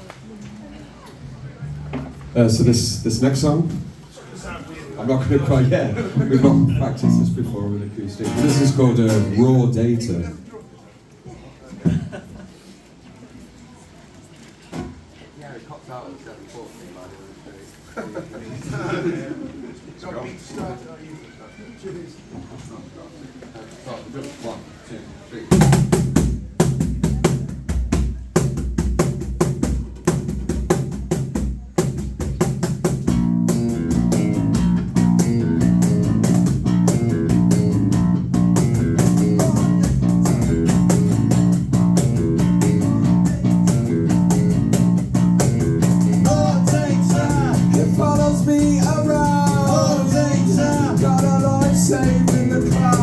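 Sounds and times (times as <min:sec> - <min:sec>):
drums steady beat: 0:06.3 - 0:07.5, 0:25.5 - 0:53.0
guitar chords: 0:06.4 - 0:07.6, 0:08.2 - 0:09.4, 0:33.1 - 0:53.0
higher melody line: 0:37.0 - 0:53.0.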